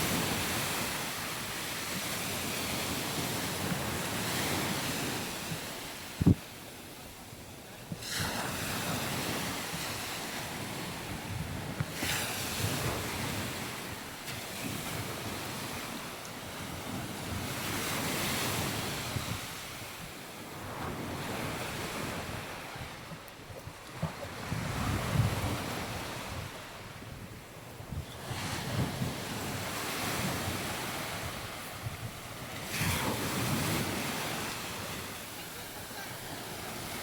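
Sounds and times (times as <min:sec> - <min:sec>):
wind buffeting microphone: 0:00.0 - 0:06.5, 0:07.9 - 0:37.0
sea waves breaking: 0:07.8 - 0:37.0.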